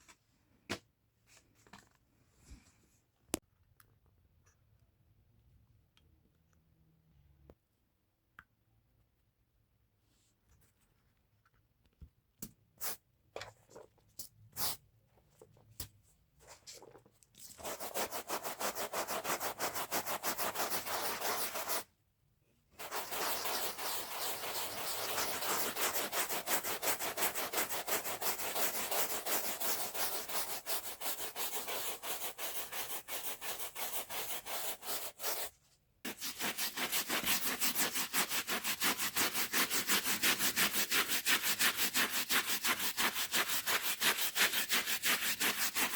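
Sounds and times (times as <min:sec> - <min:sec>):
hand brush scrubbing a rug: 0:17.6 - 0:21.9, 0:22.8 - 0:35.5, 0:36.1 - 0:45.9.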